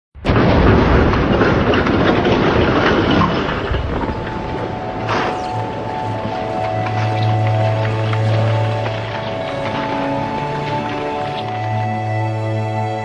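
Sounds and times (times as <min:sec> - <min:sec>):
loud rumbling rattling noise: 0:00.2 - 0:11.5
held music notes: 0:03.4 - 0:13.0.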